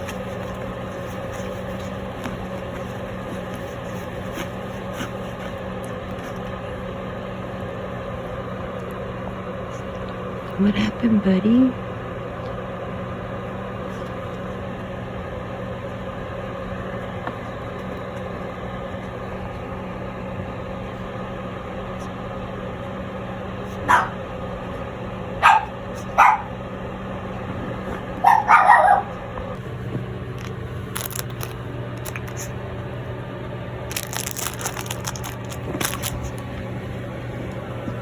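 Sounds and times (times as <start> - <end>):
steady hum: 0.0 - 38.0
puppy barking and yipping: 23.8 - 24.2, 25.4 - 26.6, 28.2 - 29.2.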